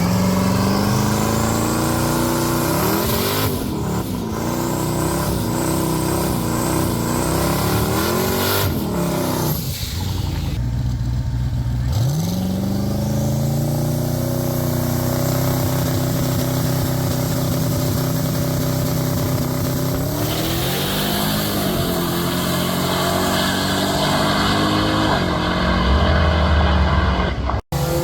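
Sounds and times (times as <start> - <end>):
drag car engine revving: 0.0 - 28.0.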